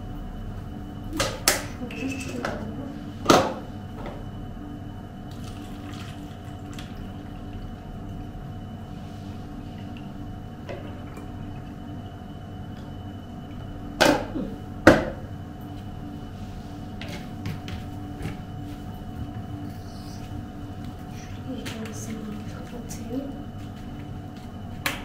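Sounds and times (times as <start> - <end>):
liquid pouring into container: 5.3 - 8.3.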